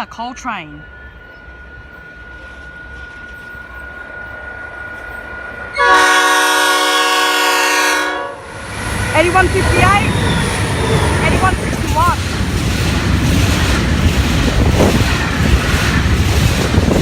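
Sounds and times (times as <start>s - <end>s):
locomotive air horn blast: 5.7s - 8.5s
locomotive low rumble: 8.4s - 17.0s.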